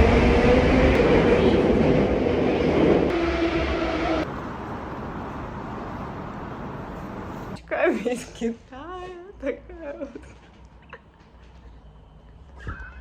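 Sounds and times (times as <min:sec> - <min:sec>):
rail car rumbling with motor whine: 0:00.0 - 0:07.6.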